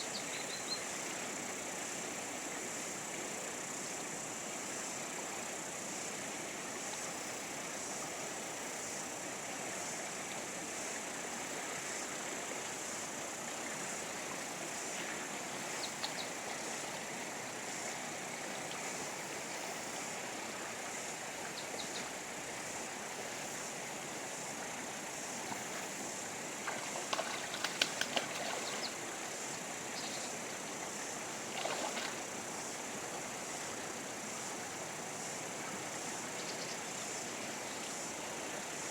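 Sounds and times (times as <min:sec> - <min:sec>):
river water rushing: 0:22.2 - 0:36.3.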